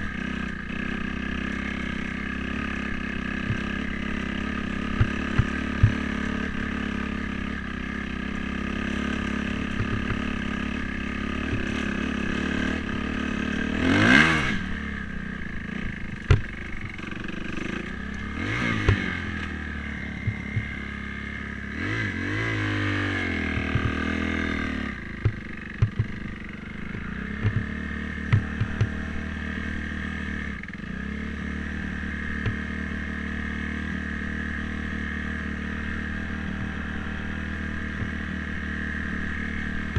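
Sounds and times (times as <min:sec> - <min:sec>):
dirt bike engine revving: 0:00.0 - 0:39.9
sharp clicks and knocks: 0:03.4 - 0:03.9, 0:04.8 - 0:06.3, 0:09.6 - 0:10.5, 0:11.4 - 0:12.0, 0:15.8 - 0:17.3, 0:18.1 - 0:19.6, 0:20.2 - 0:20.9, 0:23.4 - 0:24.3, 0:25.2 - 0:29.0, 0:32.3 - 0:32.7.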